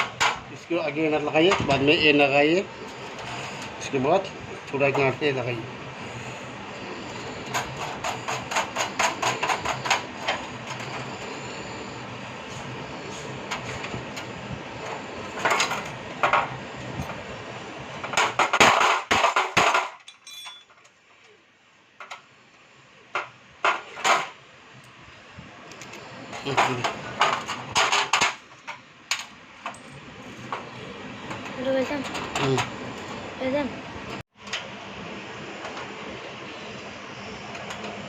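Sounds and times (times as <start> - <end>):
metal parts clattering: 18.7 - 20.8.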